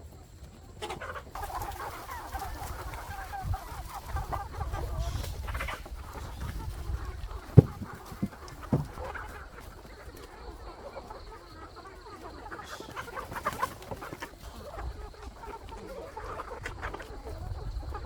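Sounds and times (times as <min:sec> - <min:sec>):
chickens clucking: 0:00.0 - 0:18.0
single knock: 0:07.6 - 0:09.0.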